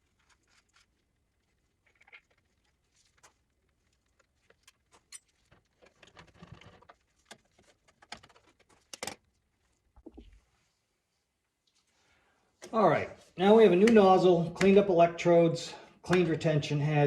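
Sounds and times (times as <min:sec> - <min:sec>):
rustling: 0:00.0 - 0:12.3.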